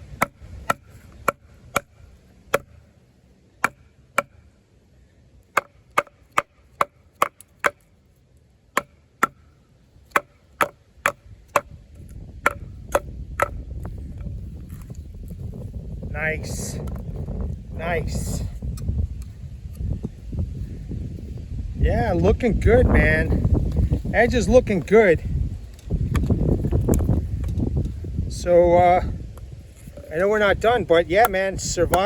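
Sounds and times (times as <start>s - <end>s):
knife striking into wood: 0.0s - 2.8s, 3.6s - 4.4s, 5.5s - 7.9s, 8.8s - 9.5s, 10.1s - 13.6s.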